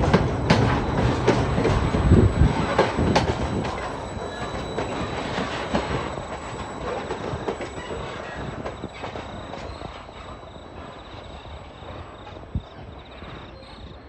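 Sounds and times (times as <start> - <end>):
train wheels clattering over joints: 0.0 - 14.0.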